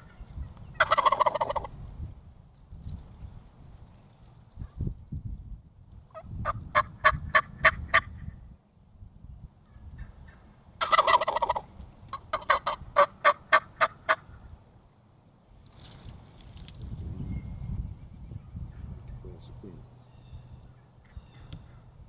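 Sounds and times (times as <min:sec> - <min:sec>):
turkey rattling gobble: 0:00.8 - 0:01.7, 0:06.4 - 0:08.0, 0:10.0 - 0:14.3
turkey yelps: 0:00.8 - 0:01.7, 0:09.7 - 0:14.4.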